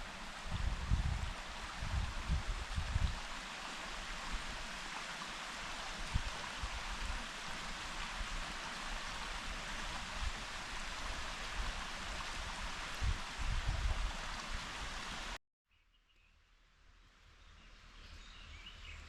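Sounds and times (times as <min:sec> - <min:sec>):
wind rumble on microphone: 0:00.0 - 0:04.7, 0:05.8 - 0:15.3
forest ambience hiss: 0:00.0 - 0:15.4.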